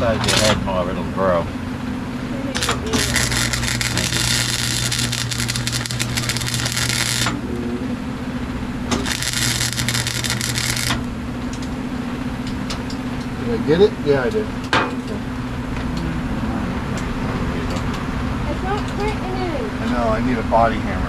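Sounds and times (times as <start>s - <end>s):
welding arc crackling: 0.0s - 0.6s, 2.6s - 7.5s, 8.4s - 13.1s
steady electrical hum: 0.0s - 21.0s.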